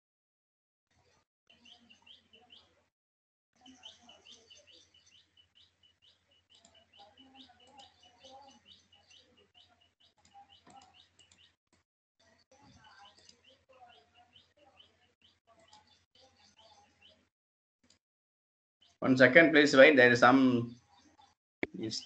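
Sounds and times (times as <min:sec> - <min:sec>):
faint small bird chirping: 0:00.9 - 0:02.9, 0:03.6 - 0:11.6, 0:12.2 - 0:17.3, 0:20.7 - 0:22.0.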